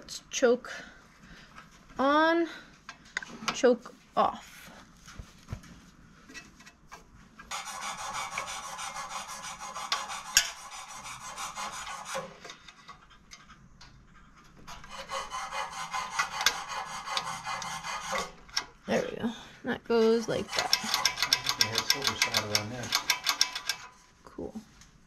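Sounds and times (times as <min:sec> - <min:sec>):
rapid rasping scrapes: 0:07.4 - 0:12.9, 0:14.1 - 0:18.5, 0:20.4 - 0:24.0
sharp ticks: 0:20.5 - 0:23.8.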